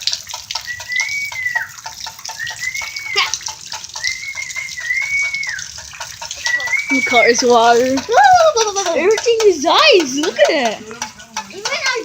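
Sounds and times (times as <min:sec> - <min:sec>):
water dripping and splattering: 0:00.0 - 0:12.0
high thin whining call: 0:00.6 - 0:07.8.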